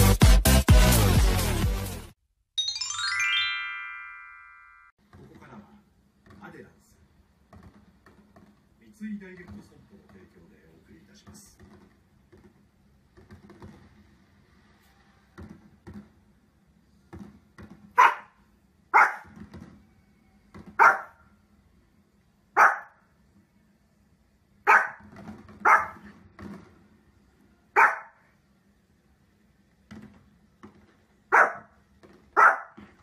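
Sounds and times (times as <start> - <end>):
dog barking: 18.0 - 19.4, 20.8 - 21.2, 22.6 - 23.0, 24.6 - 26.1, 27.7 - 28.3, 31.3 - 31.8, 32.4 - 32.8.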